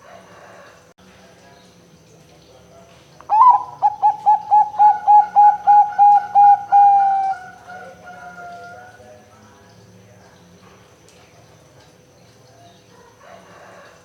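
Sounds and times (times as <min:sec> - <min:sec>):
dove cooing: 0:03.3 - 0:09.0.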